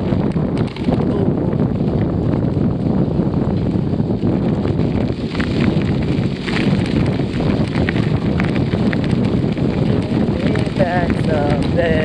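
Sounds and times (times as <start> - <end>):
small clicks and rattles: 0.0 - 1.2
wind buffeting microphone: 0.0 - 12.0.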